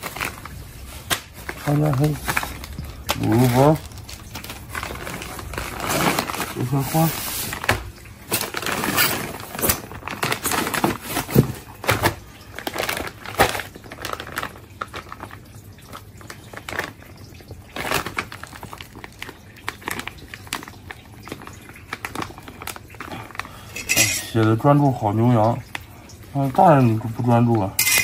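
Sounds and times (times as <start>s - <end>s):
rustling and clicking of handling: 0.0s - 15.4s.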